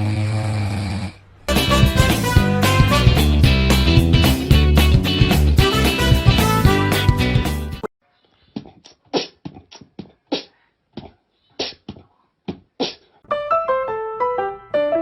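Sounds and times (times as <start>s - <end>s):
background music: 1.5s - 7.9s
piano music: 1.5s - 7.9s, 13.3s - 15.0s.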